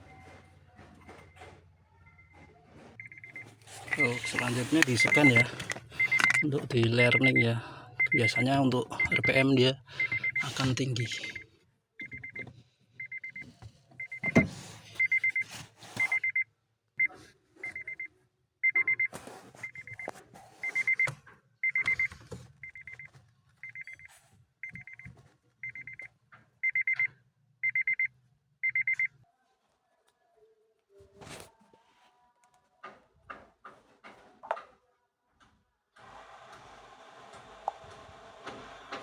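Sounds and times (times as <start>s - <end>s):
electronic warning beeper: 3.0s - 11.4s, 12.0s - 12.4s, 13.0s - 13.4s, 14.0s - 16.4s, 17.7s - 18.0s, 18.6s - 23.0s, 25.6s - 29.1s.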